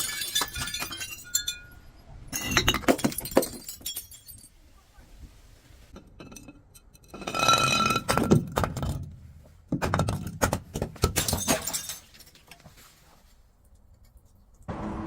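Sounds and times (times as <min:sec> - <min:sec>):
glass crunching: 0:00.0 - 0:01.8, 0:02.4 - 0:04.5, 0:11.1 - 0:12.5
glass bottle breaking: 0:00.0 - 0:04.5, 0:11.0 - 0:12.3.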